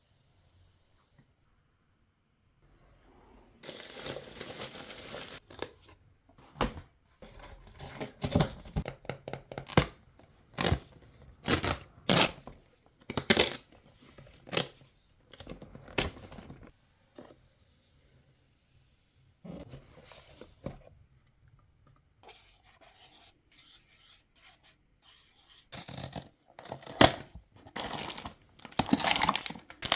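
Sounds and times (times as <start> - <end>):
wrapping crinkling: 27.7 - 29.9
packaging tearing: 27.8 - 29.9.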